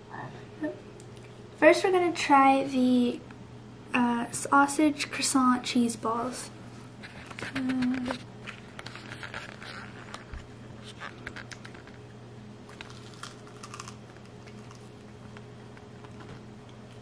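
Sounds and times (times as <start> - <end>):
steady low hum: 0.0 - 17.0
chewing clicks and crunching: 10.9 - 12.0, 12.7 - 17.0.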